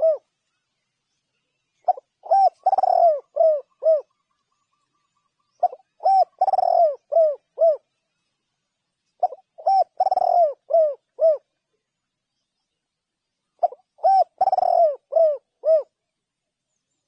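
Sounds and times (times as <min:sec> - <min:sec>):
dove cooing: 0:00.0 - 0:00.3, 0:01.8 - 0:04.2, 0:05.5 - 0:07.9, 0:09.2 - 0:11.5, 0:13.6 - 0:16.0.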